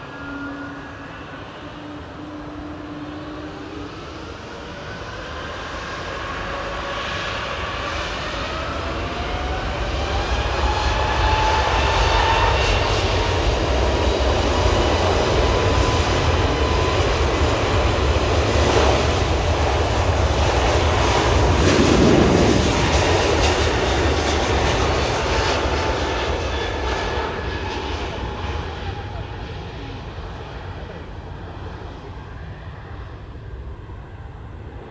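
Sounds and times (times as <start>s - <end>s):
jet engines at takeoff: 0.0s - 34.9s.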